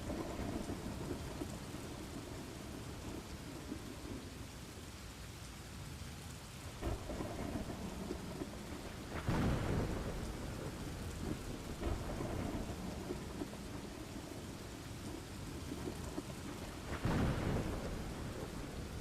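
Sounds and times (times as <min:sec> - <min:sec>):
rolling thunder: 0:00.0 - 0:04.2, 0:06.8 - 0:19.0
steady rain: 0:00.0 - 0:19.0.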